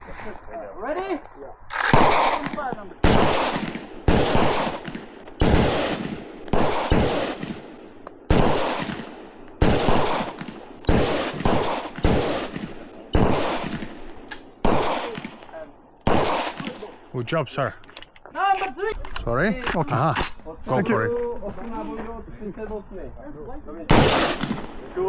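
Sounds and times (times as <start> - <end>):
echoing gunshots: 1.7 - 17.1, 23.9 - 25.0.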